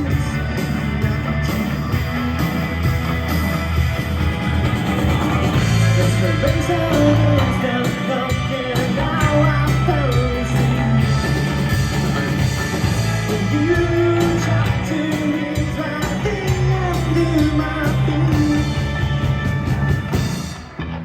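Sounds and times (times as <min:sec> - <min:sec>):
rock band playing: 0:00.0 - 0:21.0
person singing: 0:05.5 - 0:11.5, 0:13.0 - 0:19.0.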